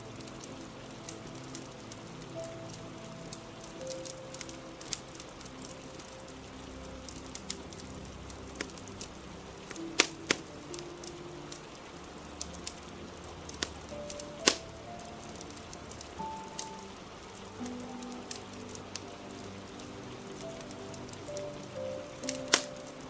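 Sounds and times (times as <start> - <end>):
rain hiss: 0.0 - 23.0
soft background music: 0.0 - 23.0
wood fire crackling and popping: 7.0 - 11.8, 12.4 - 22.9.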